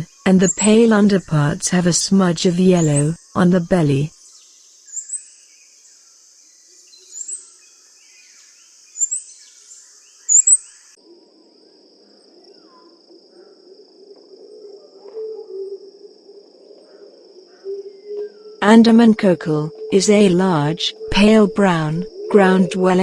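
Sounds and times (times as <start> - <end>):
high insect drone: 0.0 - 23.0
small bird calling: 4.9 - 5.3, 6.9 - 11.0.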